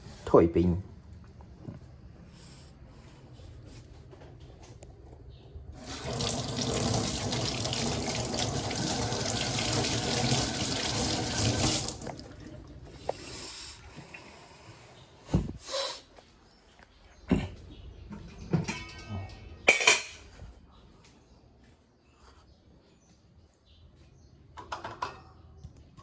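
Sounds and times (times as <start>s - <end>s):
tap running into sink: 5.8s - 12.2s.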